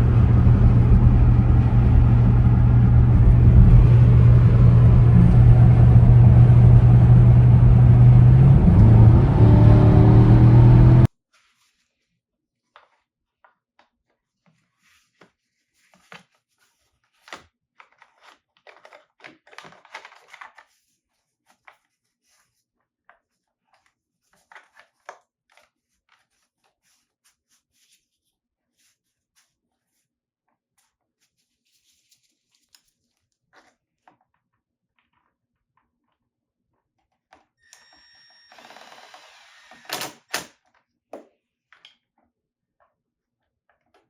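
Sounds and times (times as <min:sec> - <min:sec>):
clicks and scrapes of handling: 0:12.7 - 0:36.2.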